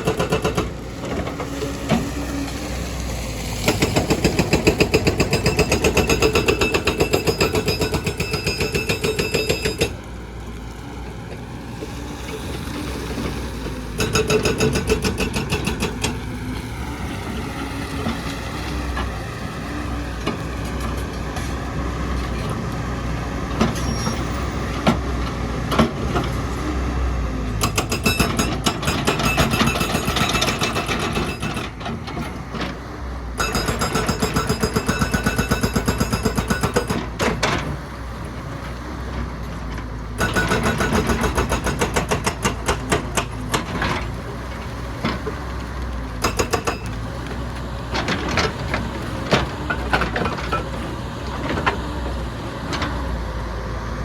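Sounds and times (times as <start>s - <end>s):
hydraulic breaker hammering: 14.0s - 16.1s, 40.2s - 43.8s.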